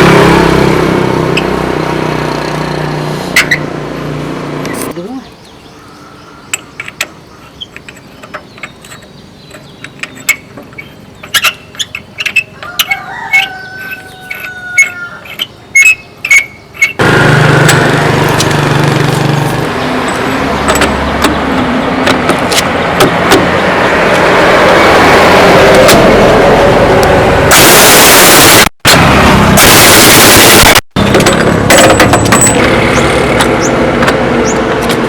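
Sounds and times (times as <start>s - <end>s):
loud steady machine noise: 17.0s - 35.0s
metal clinks and knocks: 31.1s - 32.7s.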